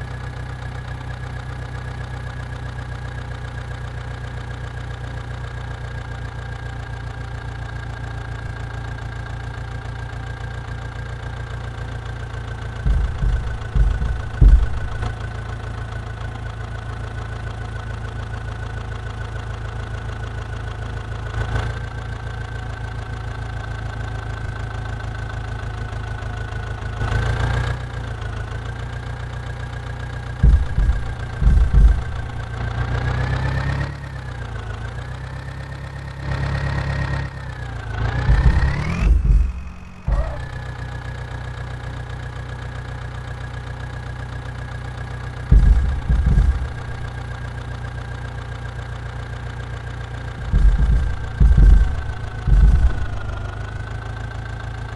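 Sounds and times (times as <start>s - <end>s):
diesel engine idling: 0.0s - 27.0s, 27.9s - 33.4s, 37.5s - 54.9s
loud low thumps: 12.8s - 15.3s, 30.4s - 32.6s, 38.2s - 40.8s, 45.5s - 47.2s, 50.4s - 53.9s.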